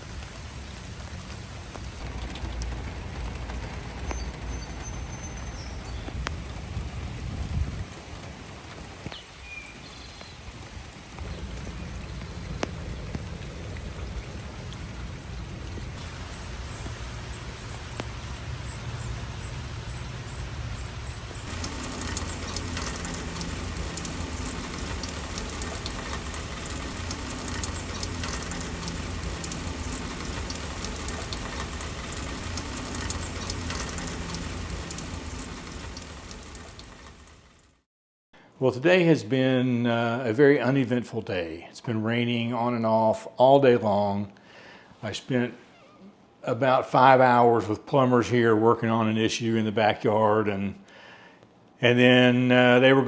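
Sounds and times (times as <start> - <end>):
rain falling: 0.0 - 37.8
raindrops splashing near microphone: 0.0 - 37.8.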